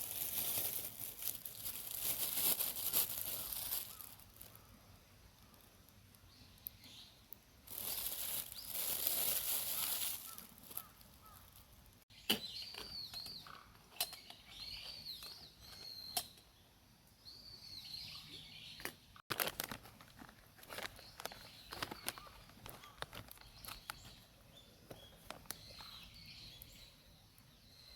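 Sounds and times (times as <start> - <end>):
small birds chirping: 0.0 - 19.2, 20.7 - 27.9
hissing rustling noise: 7.7 - 12.0.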